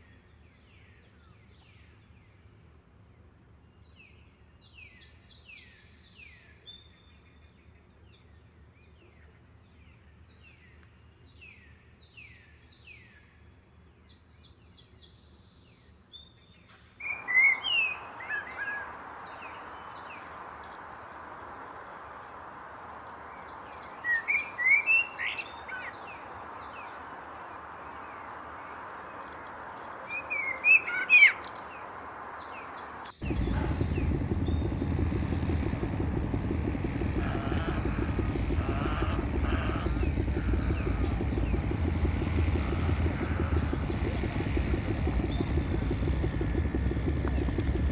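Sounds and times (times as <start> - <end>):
high insect drone: 31.3 - 47.9
songbirds calling: 32.4 - 47.9
loud low rumble: 33.2 - 47.9.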